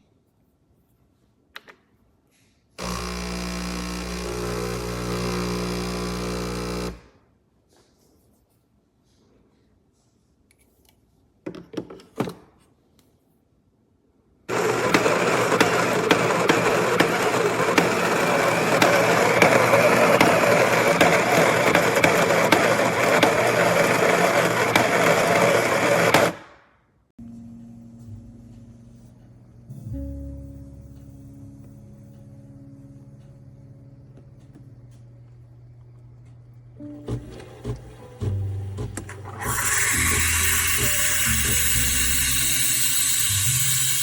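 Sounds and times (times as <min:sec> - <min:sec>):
espresso machine whirring: 0:02.8 - 0:07.1, 0:14.5 - 0:26.4, 0:34.0 - 0:44.0.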